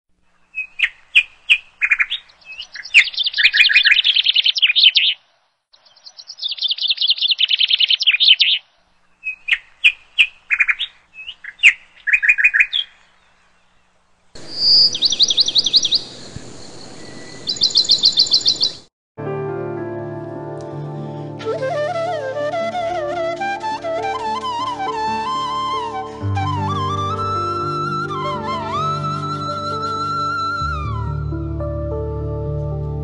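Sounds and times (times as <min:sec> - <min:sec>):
songbirds chirping and trilling: 0:00.2 - 0:18.9
steady background hiss: 0:08.5 - 0:18.8.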